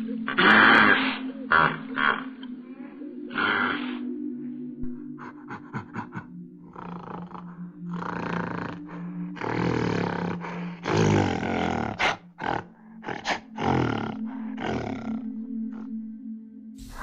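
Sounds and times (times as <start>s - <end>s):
large animal roaring and growling: 6.7s - 15.9s, 16.8s - 17.0s.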